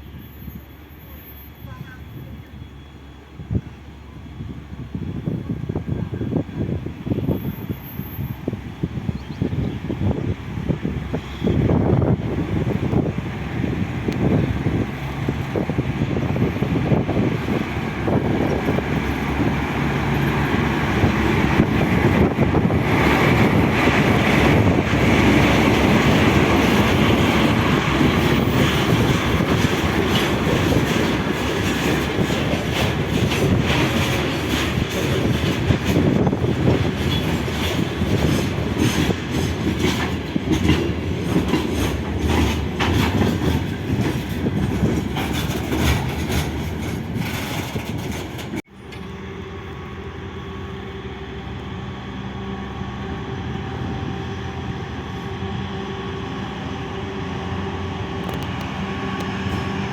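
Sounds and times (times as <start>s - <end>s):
train rolling rumble: 0.0s - 59.9s
train wheels clicking over rail joints: 7.2s - 49.2s.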